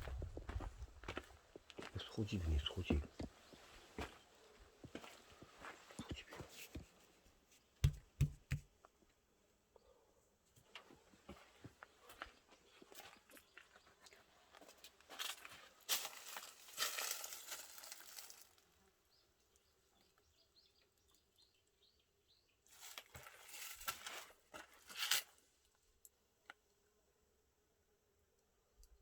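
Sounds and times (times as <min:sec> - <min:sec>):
crunching and rustling: 0:14.6 - 0:18.6.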